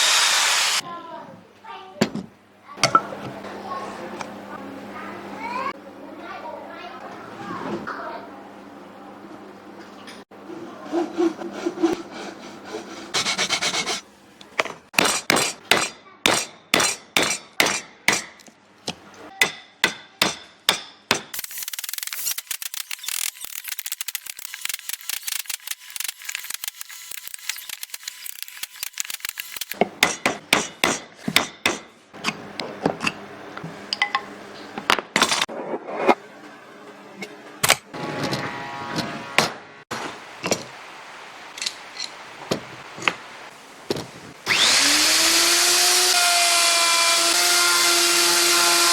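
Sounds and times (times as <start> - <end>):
hand file rasping: 11.0 - 14.0.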